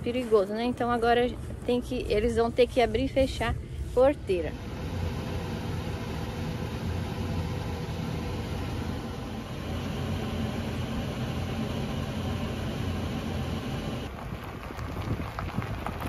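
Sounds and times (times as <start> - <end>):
motorhome engine humming: 4.2 - 14.2.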